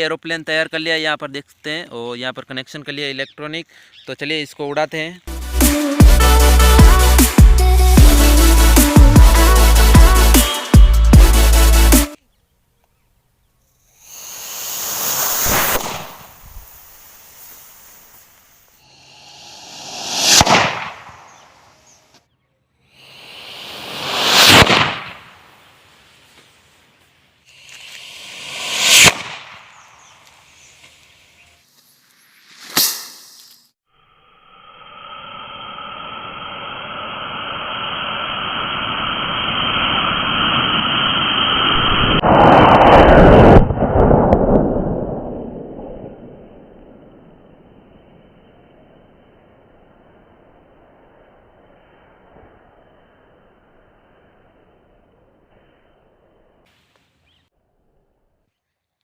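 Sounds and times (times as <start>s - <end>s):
rocket hissing rush: 13.9s - 21.6s, 22.9s - 26.1s, 27.5s - 30.8s, 32.5s - 33.7s, 34.5s - 47.0s
rocket motor hissing: 14.0s - 20.9s
rocket sharp crack: 14.2s - 18.2s, 19.0s - 21.8s, 23.5s - 25.8s, 27.8s - 30.4s, 32.6s - 33.4s, 37.9s - 54.0s
loud explosion blast: 19.8s - 21.3s, 39.8s - 47.4s.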